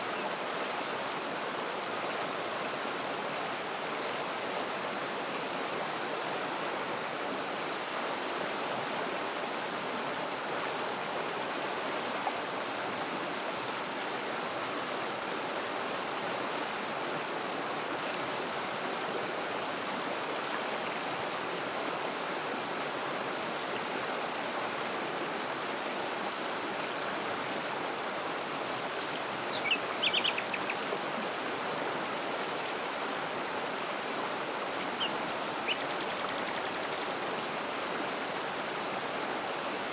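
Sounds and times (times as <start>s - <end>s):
waterfall and stream rushing: 0.0s - 39.9s
bird chirping: 29.0s - 30.9s, 35.0s - 37.2s.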